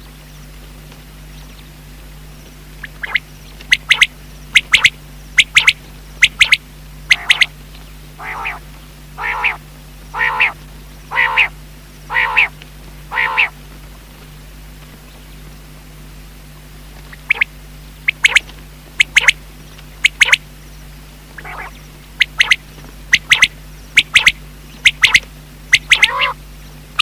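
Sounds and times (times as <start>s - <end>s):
steady low hum: 0.0s - 27.0s
quail calling: 2.8s - 7.6s, 8.2s - 13.6s, 17.0s - 19.4s, 20.0s - 20.4s, 21.4s - 26.4s.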